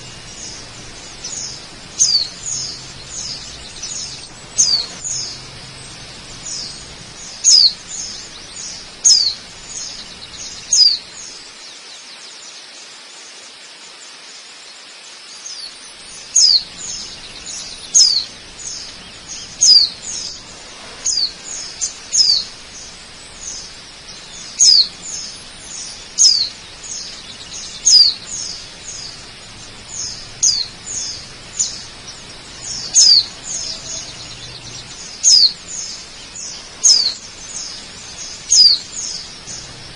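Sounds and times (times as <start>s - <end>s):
bird chirping: 0.0s - 12.7s, 15.0s - 39.9s
waterfall rushing: 0.0s - 39.9s.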